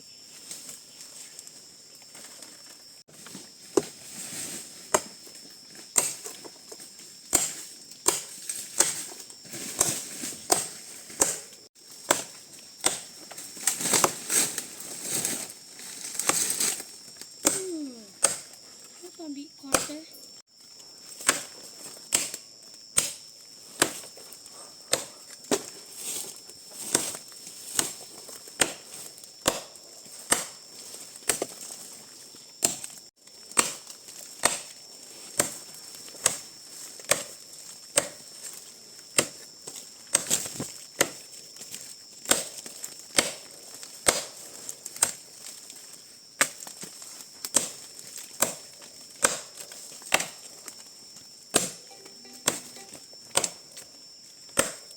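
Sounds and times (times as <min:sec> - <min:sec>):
tool striking in chopping rhythm: 0:06.0 - 0:06.3, 0:07.3 - 0:09.0, 0:10.5 - 0:13.1, 0:17.4 - 0:18.5, 0:19.7 - 0:20.0, 0:22.1 - 0:22.4, 0:23.0 - 0:23.2, 0:24.9 - 0:25.1, 0:28.6 - 0:29.7, 0:30.3 - 0:30.6, 0:34.4 - 0:34.7, 0:38.0 - 0:38.2, 0:43.1 - 0:43.4, 0:44.0 - 0:44.3, 0:49.2 - 0:49.5, 0:51.5 - 0:53.6, 0:54.6 - 0:54.8
high-pitched hum: 0:51.8 - 0:53.4.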